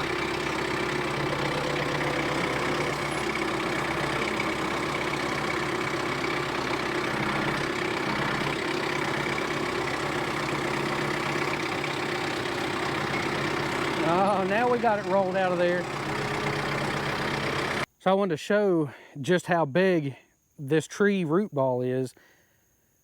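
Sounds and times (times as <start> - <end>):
diesel tractor engine running: 0.0 - 17.9.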